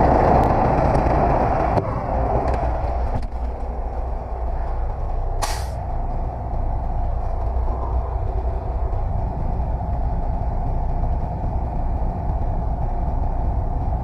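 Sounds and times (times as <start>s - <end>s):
diesel truck engine running: 0.0s - 14.0s
air brake hiss: 5.4s - 5.8s.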